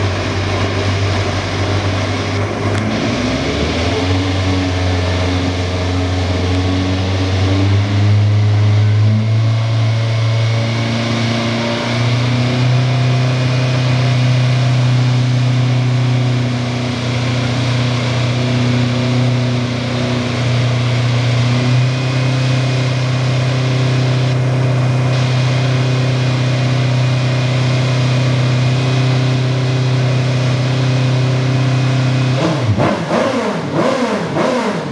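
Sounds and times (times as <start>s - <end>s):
race car engine idling: 0.0s - 34.9s.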